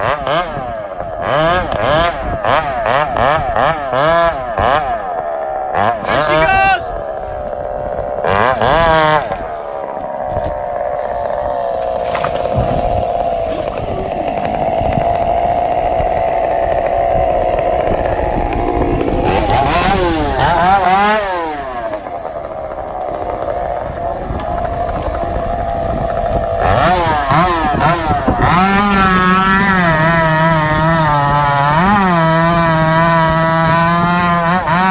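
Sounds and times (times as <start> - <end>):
chainsaw cutting timber: 0.0 - 34.9.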